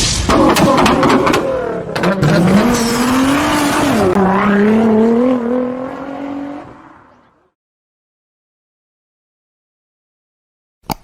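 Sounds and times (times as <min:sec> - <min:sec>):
car engine revving: 0:00.3 - 0:07.5.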